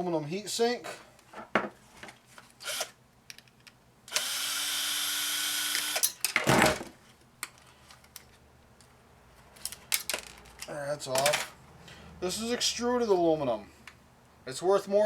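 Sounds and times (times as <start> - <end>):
cordless drill backing out screw: 4.1 - 6.0
clatter of parts: 9.5 - 11.6.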